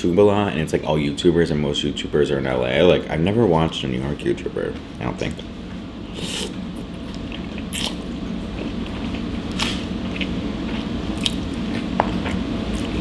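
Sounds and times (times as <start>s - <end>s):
wet chewing of pasta: 6.2s - 13.0s.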